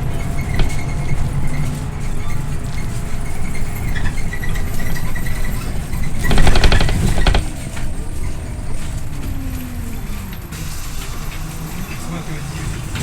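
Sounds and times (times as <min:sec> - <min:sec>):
loud rapid rattling: 0:00.0 - 0:10.4
bus engine and road rumble: 0:00.0 - 0:13.0.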